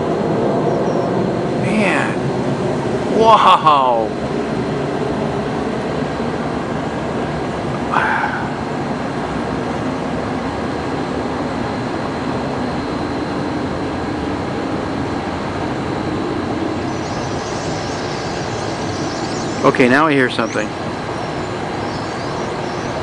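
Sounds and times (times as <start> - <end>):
road traffic roar: 0.0 - 23.0
birds twittering: 0.6 - 2.2, 16.6 - 23.0.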